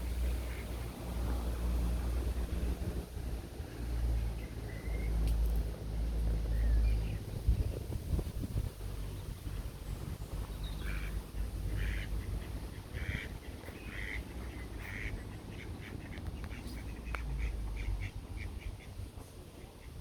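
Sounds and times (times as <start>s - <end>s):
duck quacking: 10.8s - 18.2s.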